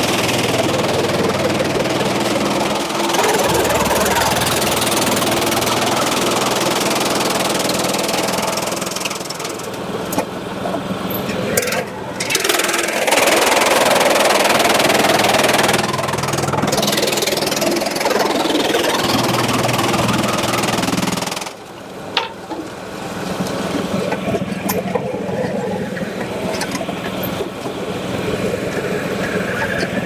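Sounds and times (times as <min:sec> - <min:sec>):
loud rushing noise of sawing: 0:00.0 - 0:21.8
engine humming: 0:00.0 - 0:30.0.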